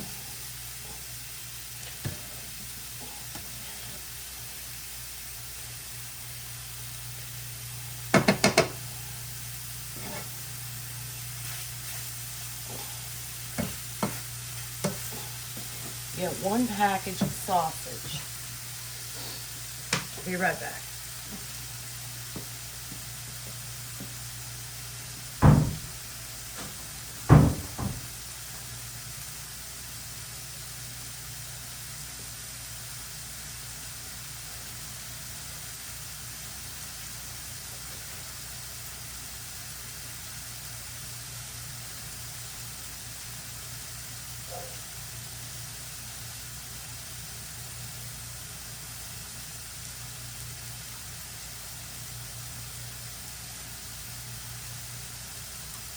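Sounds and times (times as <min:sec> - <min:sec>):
heavy thumps: 0:25.4 - 0:28.2.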